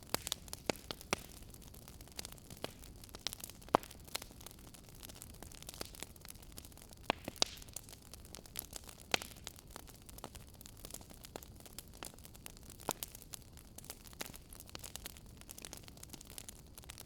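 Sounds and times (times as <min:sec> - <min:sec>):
sharp fire pops: 0:00.0 - 0:01.4, 0:06.6 - 0:09.5
wood fire crackling: 0:00.0 - 0:17.0.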